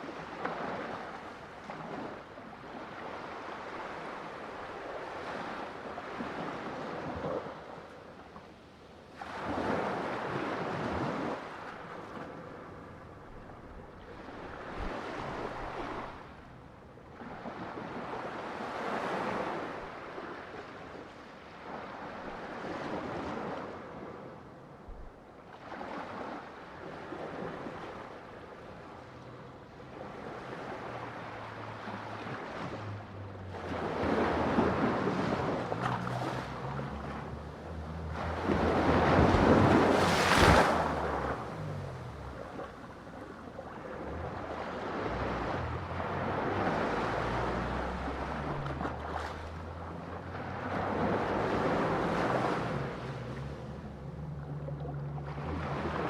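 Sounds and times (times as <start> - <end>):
low rumble of surf: 0.0 - 56.0
ocean waves breaking on shore: 0.0 - 56.0.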